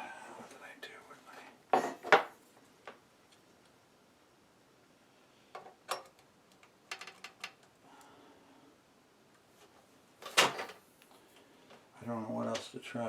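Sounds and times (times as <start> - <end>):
small objects clicking on workbench: 5.6 - 7.7.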